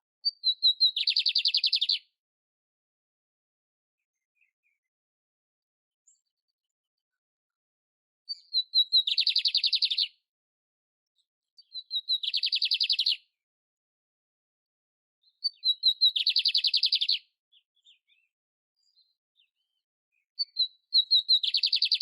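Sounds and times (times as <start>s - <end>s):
canary singing with trills: 0.2s - 2.1s, 8.3s - 10.2s, 11.6s - 13.3s, 15.2s - 19.8s, 20.4s - 22.0s.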